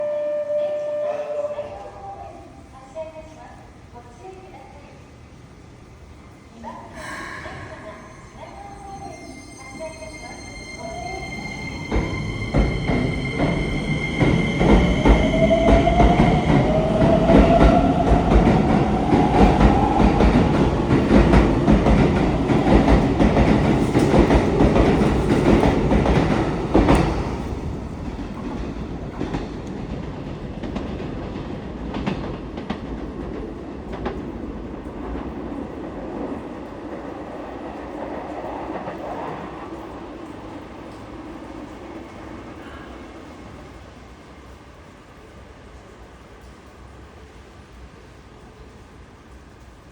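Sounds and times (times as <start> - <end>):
train wheels clattering: 10.2 - 41.2.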